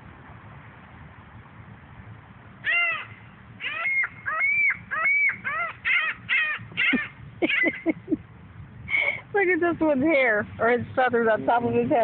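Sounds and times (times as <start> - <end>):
seagulls calling: 2.6 - 8.2.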